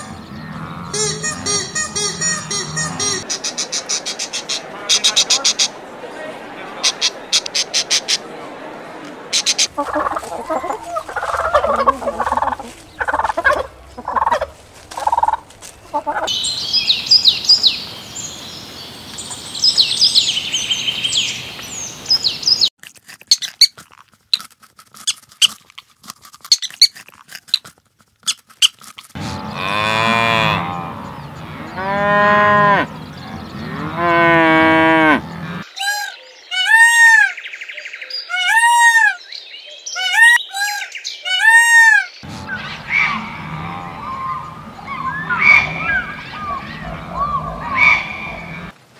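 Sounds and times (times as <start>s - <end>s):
high bird chirping: 0.0s - 5.8s, 9.4s - 22.7s, 42.2s - 48.7s
peafowl calling: 0.0s - 5.8s, 9.3s - 17.8s, 29.2s - 37.5s, 38.2s - 39.3s, 39.9s - 48.8s
cattle mooing: 0.4s - 1.6s, 2.2s - 3.2s, 29.2s - 35.6s, 42.3s - 48.7s
turkeys gobbling: 0.6s - 5.8s, 9.3s - 16.4s, 40.0s - 48.8s.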